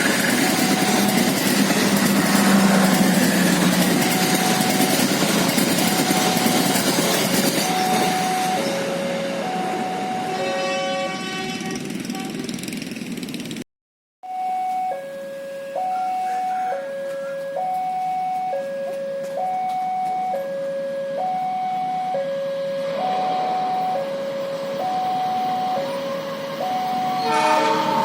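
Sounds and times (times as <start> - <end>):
level crossing two-tone alarm: 0.0 - 11.1, 14.2 - 28.0
approaching train rush: 0.0 - 13.6, 22.8 - 28.0.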